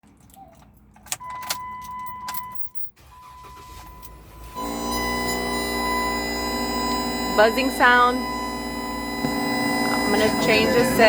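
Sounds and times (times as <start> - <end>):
high-pitched speaker whine: 4.6 - 11.0.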